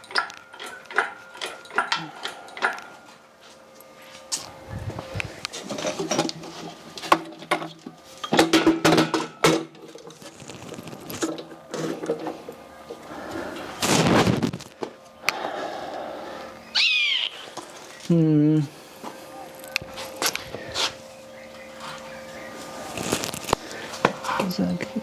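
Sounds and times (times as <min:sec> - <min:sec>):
metal clanks and scrapes: 0:05.5 - 0:13.0.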